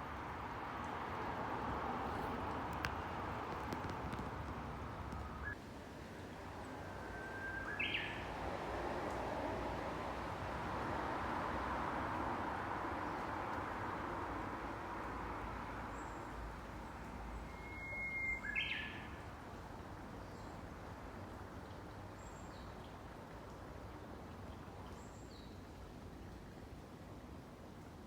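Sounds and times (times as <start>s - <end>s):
small birds chirping: 2.8s - 5.6s, 6.6s - 8.4s
bush warbler singing: 6.5s - 8.4s, 17.5s - 19.2s.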